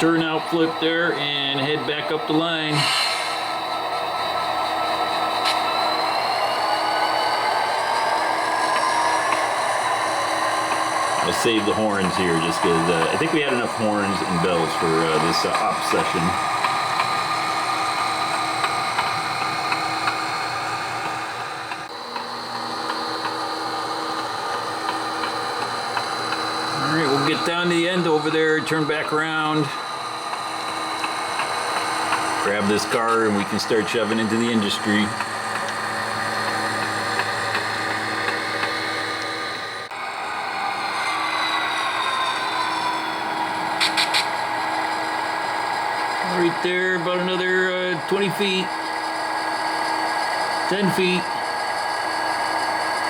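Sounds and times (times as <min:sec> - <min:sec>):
model locomotive engine hum: 0:00.0 - 0:53.0
small drive motor whine: 0:00.0 - 0:53.0.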